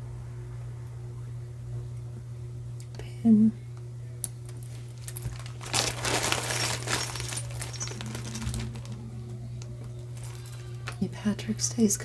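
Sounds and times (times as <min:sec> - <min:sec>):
jewelry crinkling and clicking: 0:04.5 - 0:09.0, 0:09.8 - 0:11.0.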